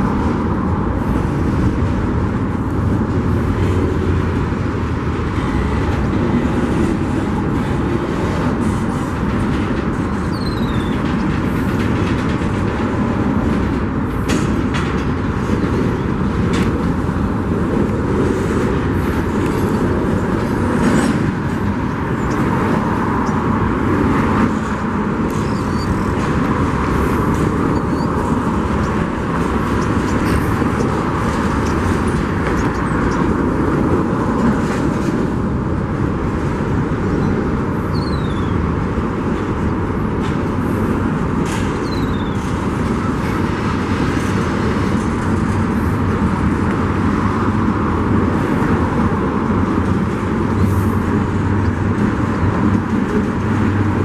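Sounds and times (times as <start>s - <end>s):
freight train rumbling and clattering: 0.0s - 54.0s
high wheel squeals: 10.1s - 11.0s, 25.3s - 26.3s, 27.7s - 28.9s, 37.2s - 38.6s, 41.8s - 43.3s.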